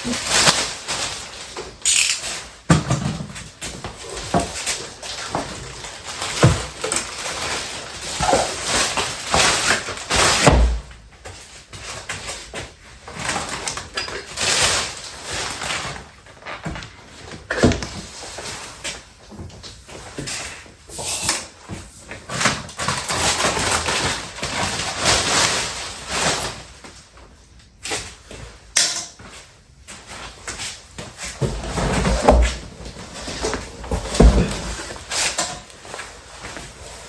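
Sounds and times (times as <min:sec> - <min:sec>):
cardboard box scraping and rustling: 0:31.2 - 0:35.4.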